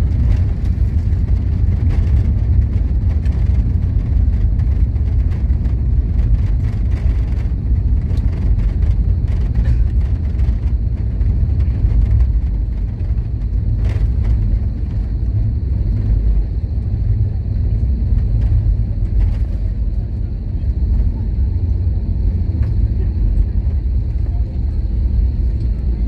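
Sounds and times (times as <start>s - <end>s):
airliner cabin engine rumble: 0.0s - 26.0s.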